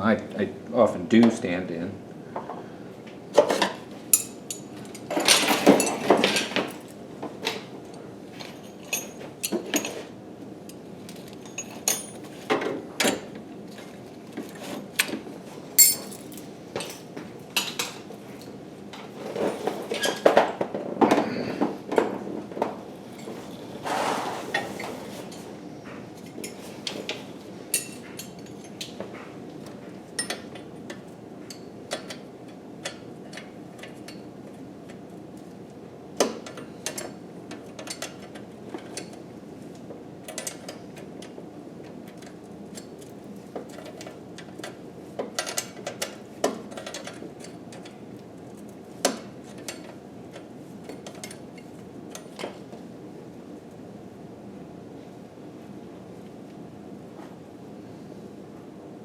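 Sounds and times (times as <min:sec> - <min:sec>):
metallic clinks of hand tools: 0:15.8 - 0:16.2.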